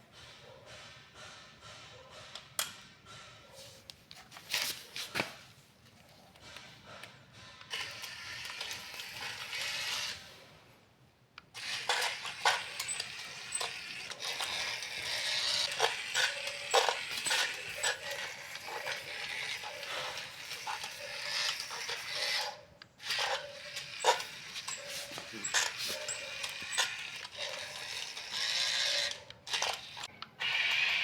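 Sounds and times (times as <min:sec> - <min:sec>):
plastic toy mechanism clicking: 0:07.6 - 0:10.3, 0:11.4 - 0:31.0.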